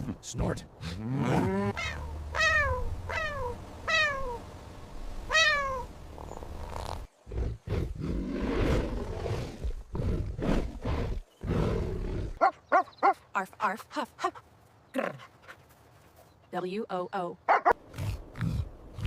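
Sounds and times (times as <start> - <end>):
cat meowing: 1.8 - 4.4, 5.3 - 5.9.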